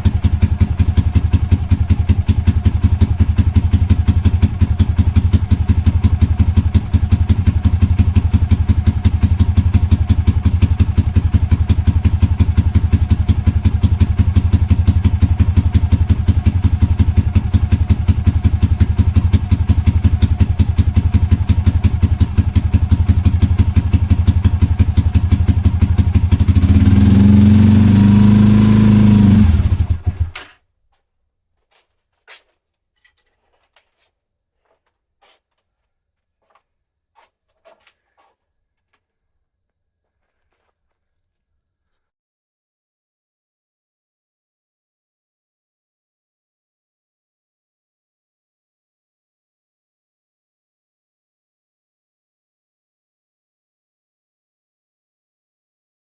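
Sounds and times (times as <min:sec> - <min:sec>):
motorcycle engine idling: 0:00.0 - 0:30.4.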